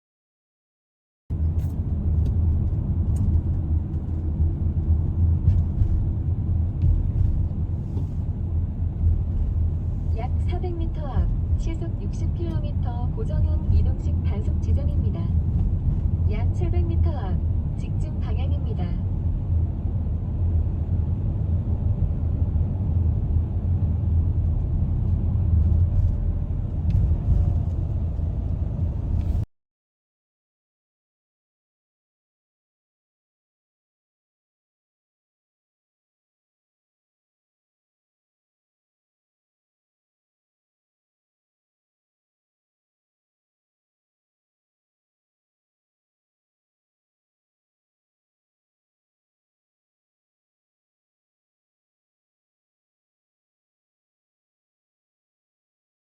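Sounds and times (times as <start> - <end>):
car engine and road noise: 1.3 - 29.5.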